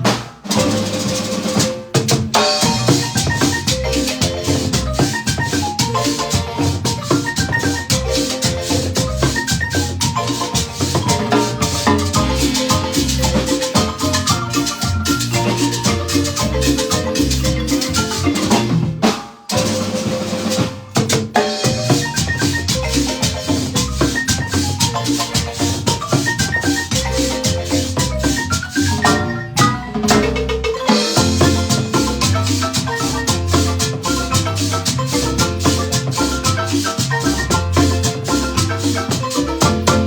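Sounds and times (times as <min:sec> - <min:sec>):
marimba ensemble playing: 0:00.0 - 0:40.0
percussion: 0:00.0 - 0:40.0
bass notes: 0:02.7 - 0:19.0, 0:21.7 - 0:40.0.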